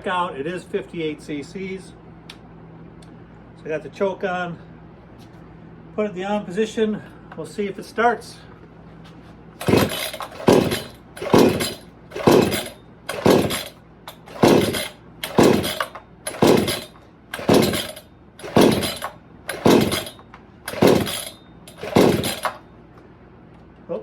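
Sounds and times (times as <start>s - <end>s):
chainsaw recoil starter pulled: 9.6s - 22.6s
engine turning over without catching: 9.6s - 22.7s.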